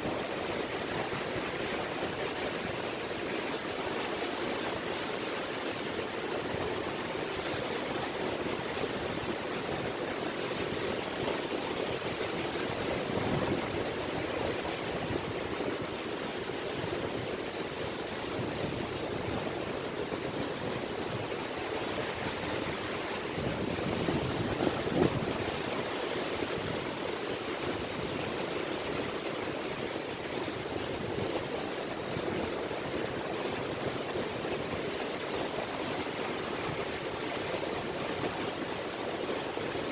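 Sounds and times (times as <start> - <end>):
small waves lapping on beach: 0.0 - 39.9.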